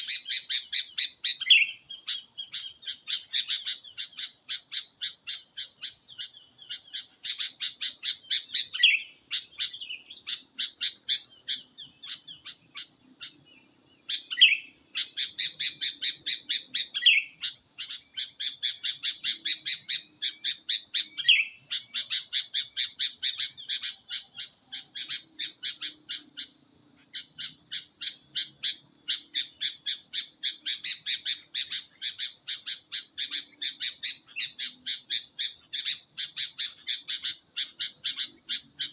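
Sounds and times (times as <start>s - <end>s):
bird chirps: 0.0s - 38.9s.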